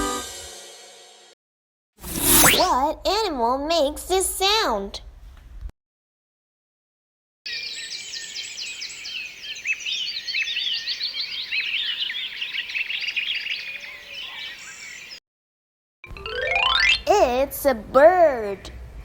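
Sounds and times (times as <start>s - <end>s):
birds chirping and twittering: 7.5s - 15.2s.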